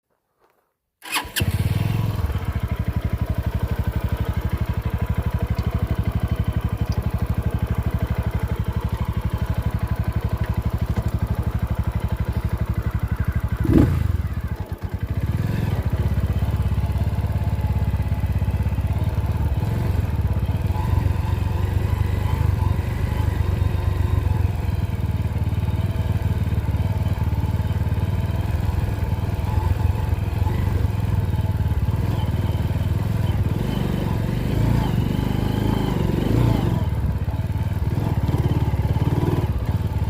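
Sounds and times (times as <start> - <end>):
motorcycle engine idling: 1.0 - 40.0.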